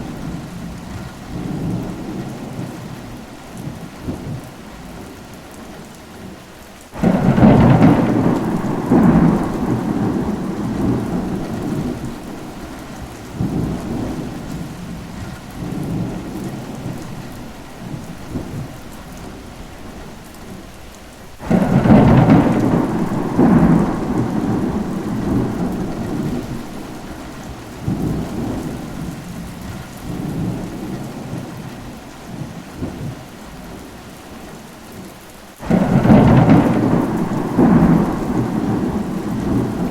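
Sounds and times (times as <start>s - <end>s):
steady rain: 0.0s - 39.9s
thunder rolling: 7.0s - 20.6s, 21.3s - 33.2s, 35.6s - 39.9s.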